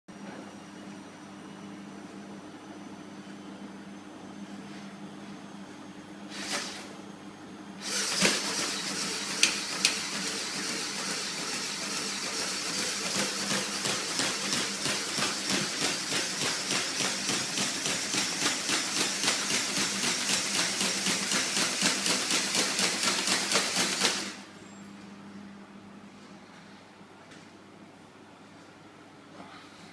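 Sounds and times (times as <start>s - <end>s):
rapid mechanical clatter with hiss: 7.8s - 24.4s.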